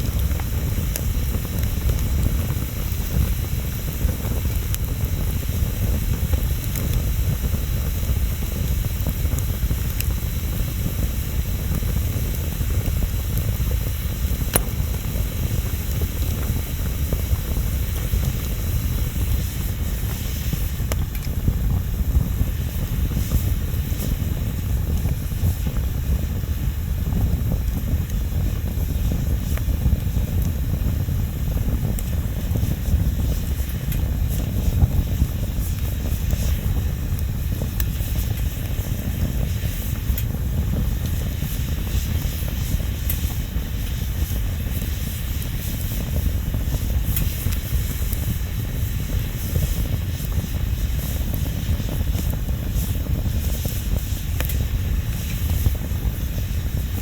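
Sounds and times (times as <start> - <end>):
bonfire crackling and rumbling: 0.0 - 57.0.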